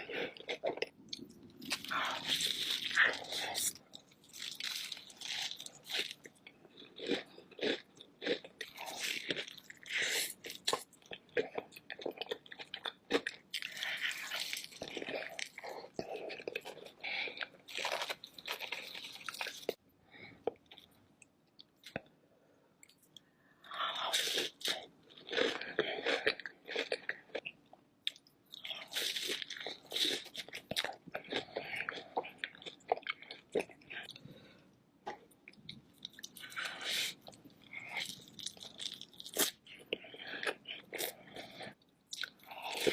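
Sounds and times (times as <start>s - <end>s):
crab shell crunching and chewing: 0.0s - 19.8s, 35.1s - 42.9s.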